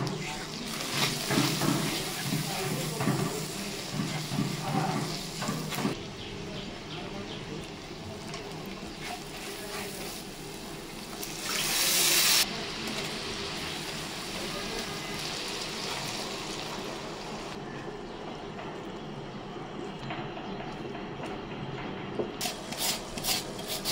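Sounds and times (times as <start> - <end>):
food sizzling in hot oil: 0.0 - 6.0, 9.0 - 17.6
spatula stirring in wok: 0.0 - 6.0, 8.3 - 11.2, 22.4 - 23.9.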